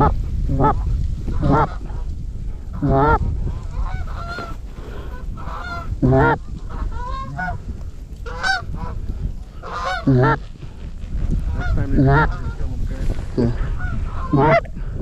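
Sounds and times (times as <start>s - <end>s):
geese honking: 0.0s - 1.9s, 2.7s - 7.6s, 8.2s - 10.5s, 11.5s - 12.8s, 13.4s - 14.9s
wind rumble on microphone: 0.0s - 15.0s.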